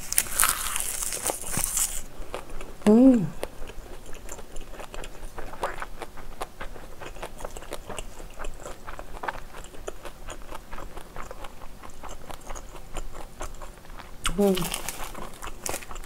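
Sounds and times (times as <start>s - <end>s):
chewing with wet mouth clicks: 3.4s - 16.0s.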